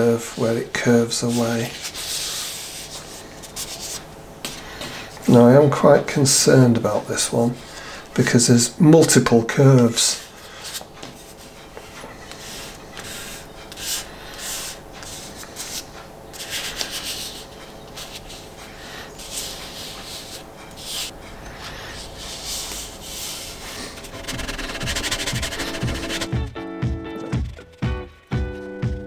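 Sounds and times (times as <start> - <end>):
hands rubbing on paper: 1.2 - 4.1, 10.2 - 26.4.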